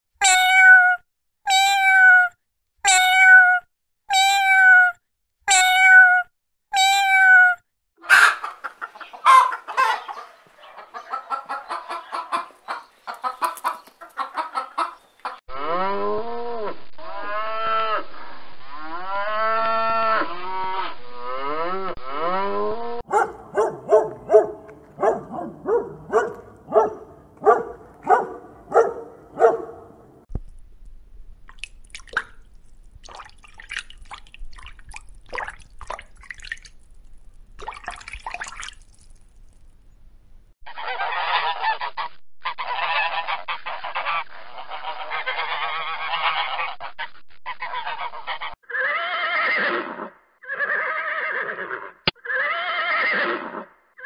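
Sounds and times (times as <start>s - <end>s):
kitten meowing: 0.2s - 7.6s
calf bawling: 21.5s - 30.2s.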